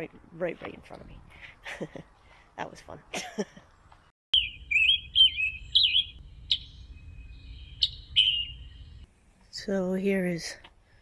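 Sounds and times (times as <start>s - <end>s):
songbird warbling: 4.4s - 9.1s.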